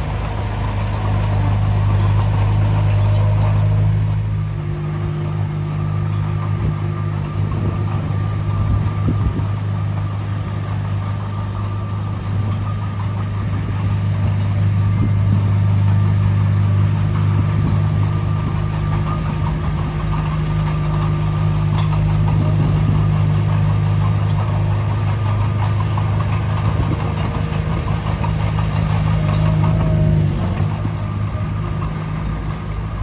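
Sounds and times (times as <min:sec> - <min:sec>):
diesel engine of heavy machinery: 0:00.0 - 0:33.0.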